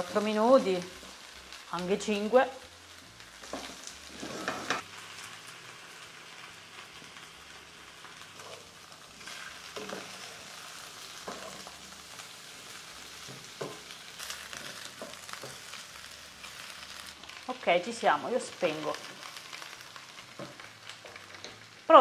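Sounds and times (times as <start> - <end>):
food sizzling in a frying pan: 0.0 - 22.0.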